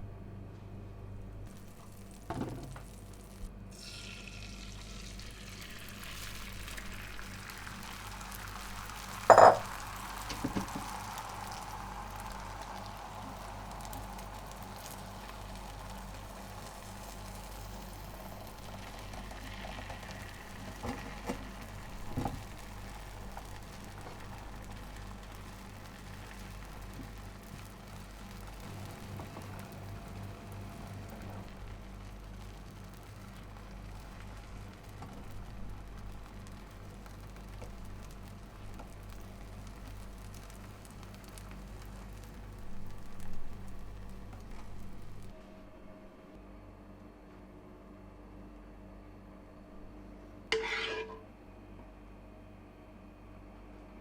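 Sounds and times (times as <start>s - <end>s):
food sizzling in frying pan: 1.5s - 45.4s, 50.5s - 51.2s
utensil clanking against pan: 9.3s - 9.8s, 50.5s - 51.2s.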